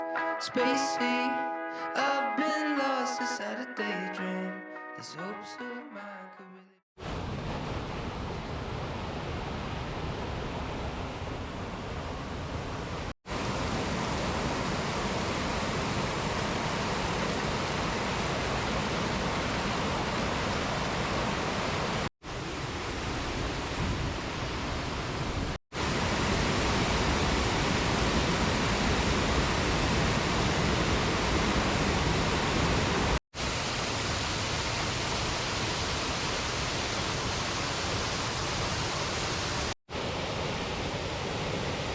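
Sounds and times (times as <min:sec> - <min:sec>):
waterfall rushing: 0:12.8 - 0:41.9.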